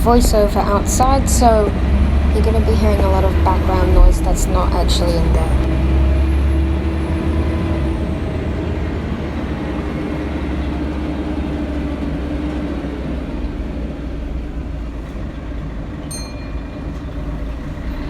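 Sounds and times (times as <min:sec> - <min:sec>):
bus engine rumble: 0:00.0 - 0:18.0
road noise: 0:00.0 - 0:18.0
faint humming tone: 0:16.0 - 0:18.0.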